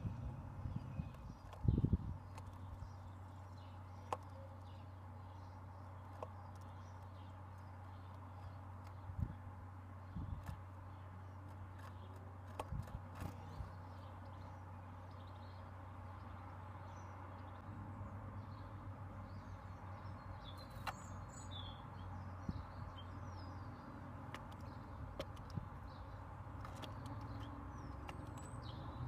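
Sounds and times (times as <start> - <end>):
small birds chirping: 0.0 - 29.0
birds tapping on a table: 0.7 - 9.4, 20.0 - 29.0.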